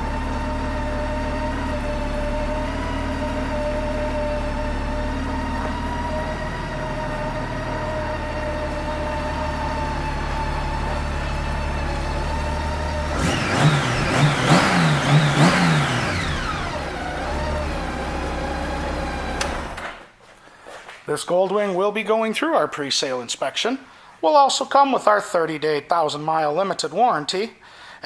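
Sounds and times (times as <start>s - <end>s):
motorcycle engine idling and revving: 0.0s - 20.0s.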